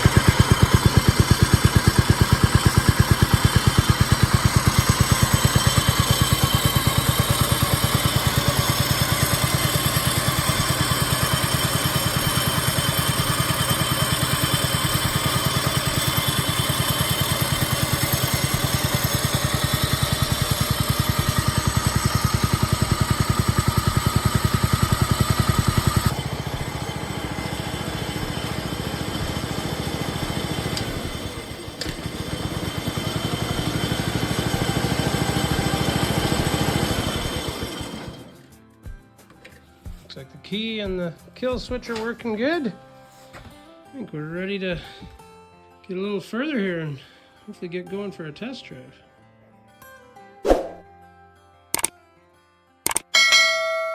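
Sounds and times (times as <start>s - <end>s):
small engine idling: 0.0s - 39.0s.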